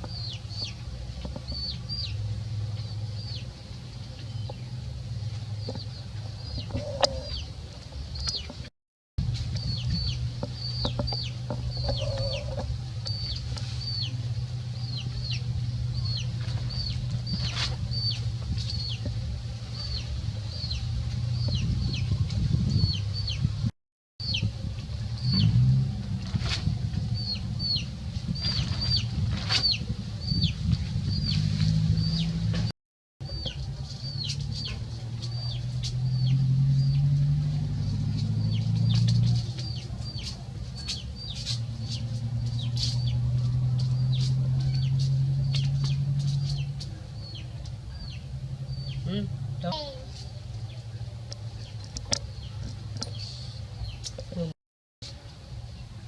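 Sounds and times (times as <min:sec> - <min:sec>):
bird chirping: 0:00.0 - 0:07.5, 0:09.4 - 0:19.2, 0:33.2 - 0:51.0.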